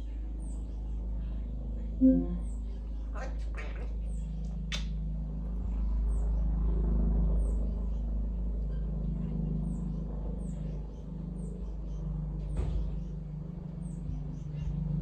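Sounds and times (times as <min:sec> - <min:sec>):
high chirps falling in pitch: 0:02.0 - 0:02.5
low hum: 0:02.0 - 0:02.9.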